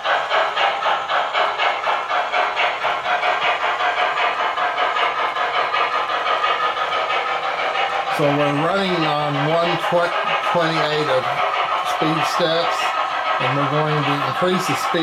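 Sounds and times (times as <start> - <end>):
model steam locomotive chuffs: 0.0 - 15.0.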